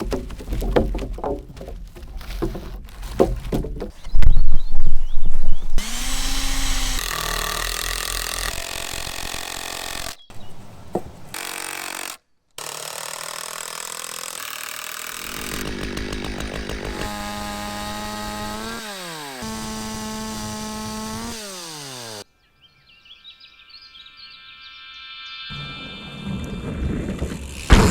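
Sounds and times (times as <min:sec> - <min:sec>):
chainsaw cutting wood: 0:05.8 - 0:10.3, 0:11.3 - 0:22.3, 0:27.1 - 0:27.9.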